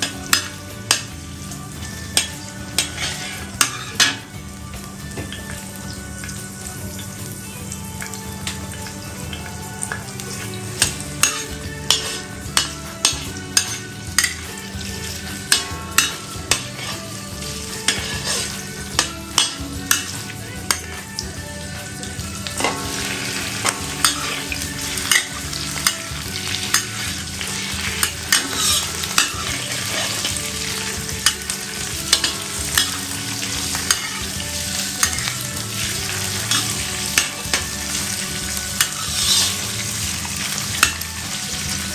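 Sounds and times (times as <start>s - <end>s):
food sizzling in a pan: 0.0s - 41.9s
spatula scraping a pan: 2.2s - 4.2s, 10.7s - 21.0s, 22.5s - 41.0s.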